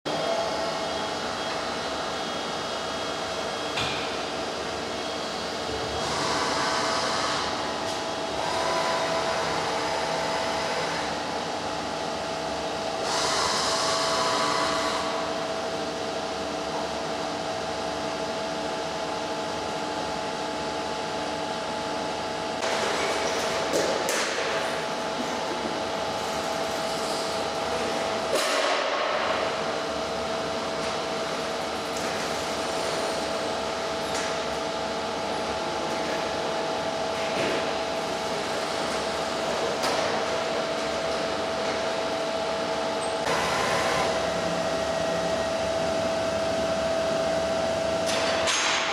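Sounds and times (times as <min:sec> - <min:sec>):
lathe machine hum: 0:00.1 - 0:18.0, 0:34.8 - 0:48.1.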